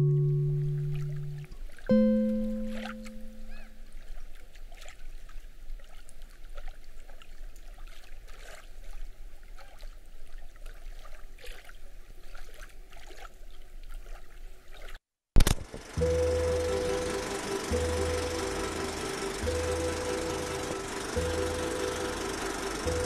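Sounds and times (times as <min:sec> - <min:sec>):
held musical note: 0:00.0 - 0:03.5, 0:16.0 - 0:23.0
lake water lapping: 0:00.3 - 0:15.0.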